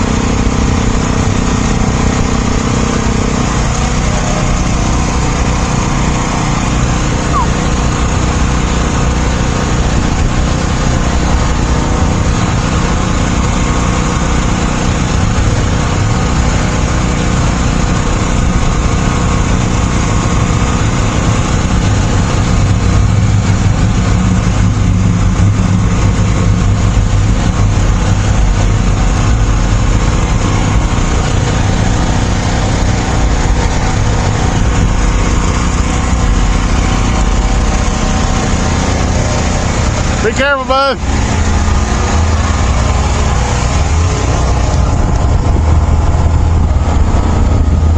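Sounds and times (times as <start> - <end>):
vehicle engine running: 0.0 - 47.9.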